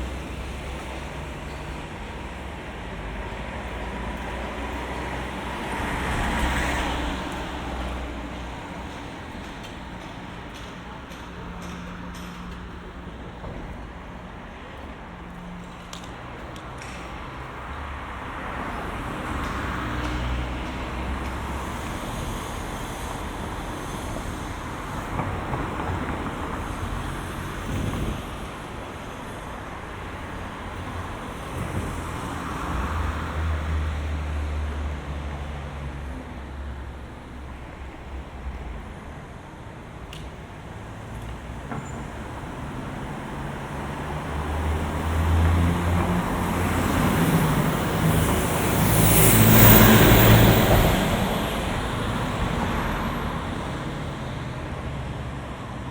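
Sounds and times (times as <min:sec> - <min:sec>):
road traffic passing: 0:00.0 - 0:55.9.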